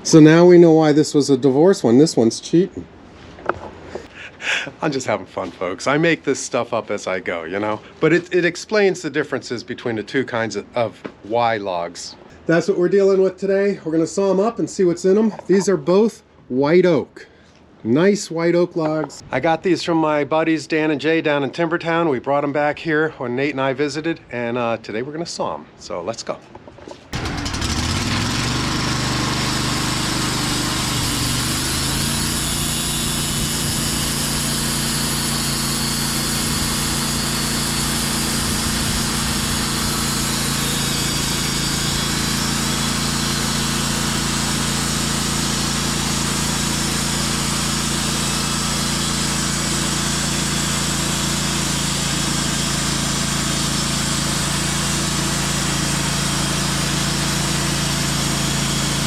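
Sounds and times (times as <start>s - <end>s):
band saw cutting log: 27.2s - 59.0s
sawmill engine revving: 27.2s - 59.0s.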